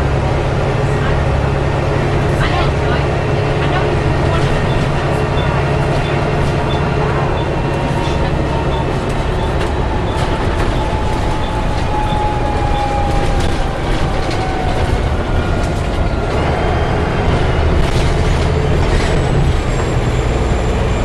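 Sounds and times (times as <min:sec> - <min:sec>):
bus engine and road rumble: 0:00.0 - 0:21.0
howling whine sliding down: 0:09.6 - 0:17.1.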